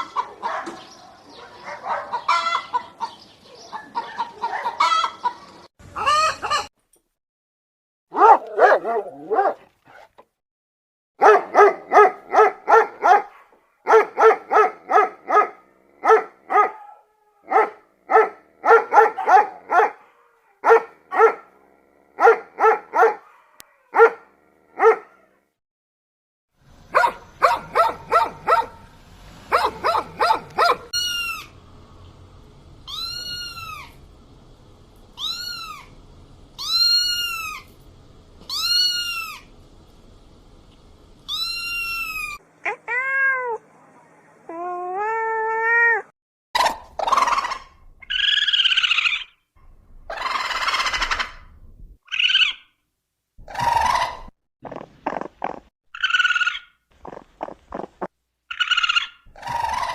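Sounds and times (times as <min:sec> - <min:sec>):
animal barks and yelps: 0:00.0 - 0:06.7, 0:08.1 - 0:10.1, 0:11.2 - 0:25.5, 0:26.8 - 0:31.6, 0:32.8 - 0:34.0, 0:35.2 - 0:36.0, 0:36.6 - 0:37.8, 0:38.4 - 0:39.5, 0:41.3 - 0:43.6, 0:44.4 - 0:49.4, 0:50.1 - 0:52.7, 0:53.4 - 0:54.4, 0:55.2 - 0:57.8, 0:58.5 - 0:59.9
harsh animal cries: 0:02.1 - 0:03.0, 0:04.3 - 0:05.3, 0:05.9 - 0:06.7, 0:29.6 - 0:31.6, 0:32.9 - 0:34.0, 0:35.2 - 0:36.0, 0:36.6 - 0:37.7, 0:38.5 - 0:39.5, 0:41.3 - 0:43.6, 0:47.0 - 0:49.3, 0:50.1 - 0:51.4, 0:53.5 - 0:54.3, 0:58.5 - 0:59.9
long arched animal calls: 0:06.0 - 0:06.7, 0:29.6 - 0:31.6, 0:32.8 - 0:34.0, 0:35.2 - 0:36.0, 0:36.6 - 0:37.7, 0:38.5 - 0:39.5, 0:41.3 - 0:42.4, 0:47.0 - 0:49.4, 0:50.1 - 0:51.4, 0:53.5 - 0:57.9, 0:58.5 - 0:59.9.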